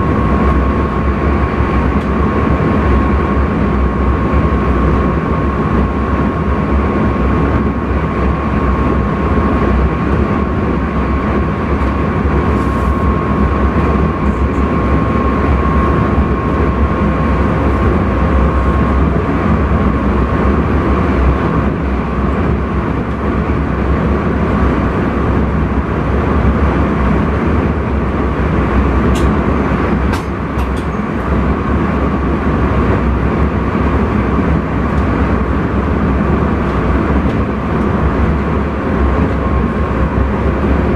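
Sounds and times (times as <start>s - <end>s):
thin steady whine: 0.0s - 40.9s
train rumbling: 0.0s - 40.9s.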